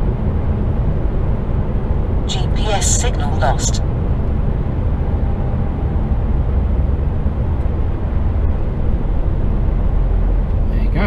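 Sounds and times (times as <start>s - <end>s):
truck engine and tyre rumble: 3.9s - 11.0s.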